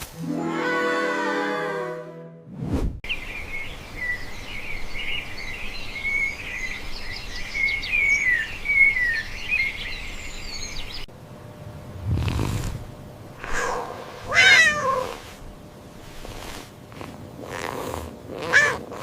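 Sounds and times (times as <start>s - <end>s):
songbirds chirping: 3.1s - 11.1s.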